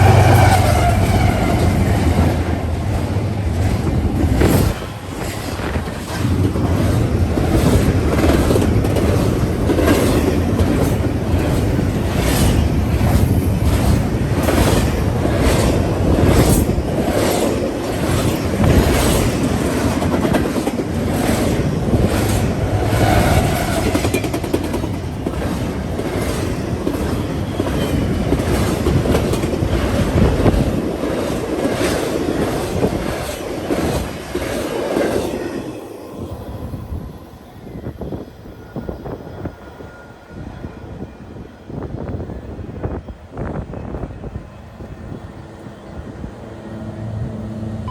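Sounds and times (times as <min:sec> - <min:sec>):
rail joint clacks: 0:00.0 - 0:35.5
train wheels rumbling on rails: 0:00.0 - 0:47.9.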